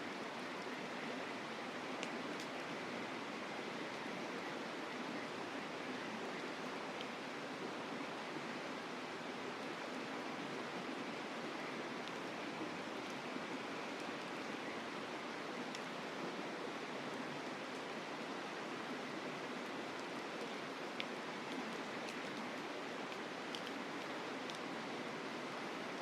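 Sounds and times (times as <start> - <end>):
mountain river flowing: 0.0 - 26.0
campfire crackles: 11.1 - 26.0.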